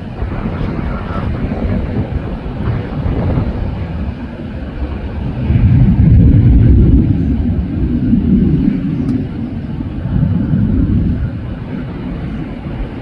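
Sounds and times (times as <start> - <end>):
jet airliner engine roar: 0.0 - 13.0.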